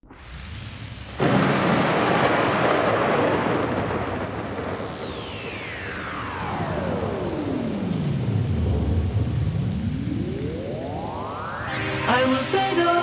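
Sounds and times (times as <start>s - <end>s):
loud thunderclap: 0.1s - 11.7s
rain hiss: 0.1s - 13.0s
high tone gliding downward: 5.0s - 13.0s.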